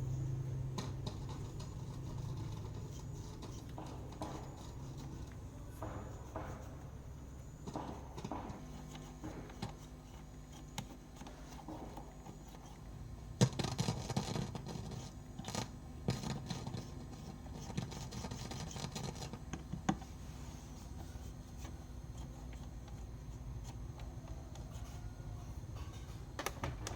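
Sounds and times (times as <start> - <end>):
steady low hum: 0.0 - 26.9
clicks and knocks: 25.8 - 26.9.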